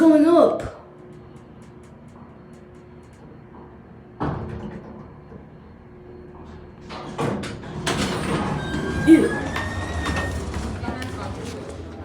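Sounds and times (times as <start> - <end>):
elevator humming: 0.0 - 12.0
elevator door clattering: 6.5 - 12.0.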